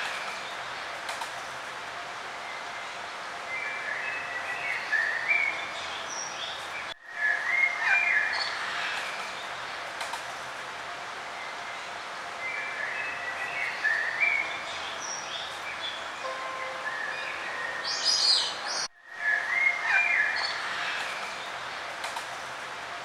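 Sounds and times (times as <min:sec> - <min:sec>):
outdoor ambient hiss: 0:00.0 - 0:23.0
songbirds chirping: 0:11.2 - 0:21.9.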